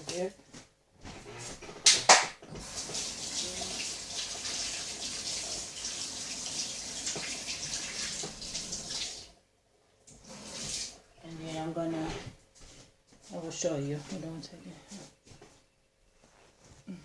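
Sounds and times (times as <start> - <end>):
water running from a tap: 2.5 - 9.4, 10.1 - 11.0.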